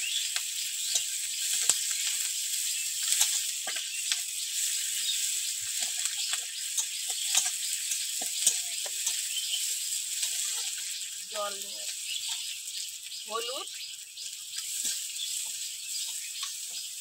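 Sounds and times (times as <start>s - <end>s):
vegetables sizzling in hot oil: 0.0s - 17.0s
metal spatula scraping a wok: 3.0s - 11.1s.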